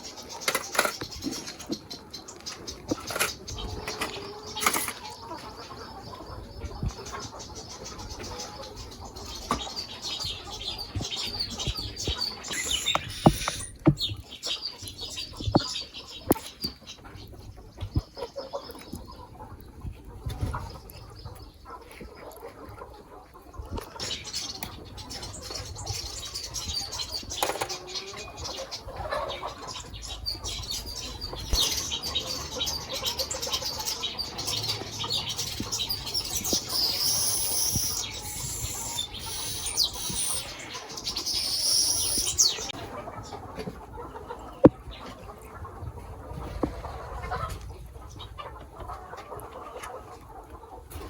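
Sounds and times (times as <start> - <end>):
chickens: 0.0 - 51.0
high bird chirping: 6.0 - 16.0, 24.1 - 42.8.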